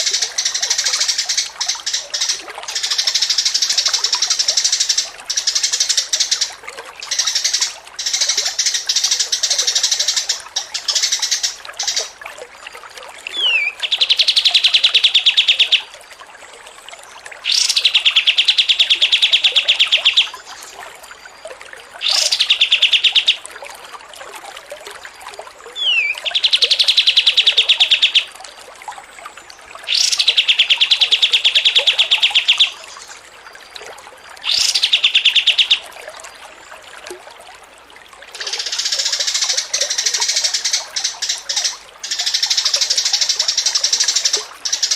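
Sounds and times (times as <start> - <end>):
songbird singing: 13.2 - 16.0, 16.9 - 23.5, 25.8 - 28.4, 29.4 - 36.0, 38.4 - 44.9.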